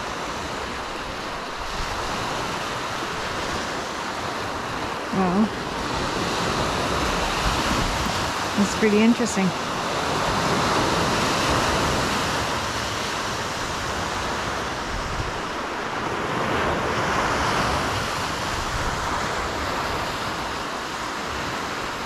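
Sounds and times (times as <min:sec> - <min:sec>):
surf washing onto beach: 0:00.0 - 0:22.0.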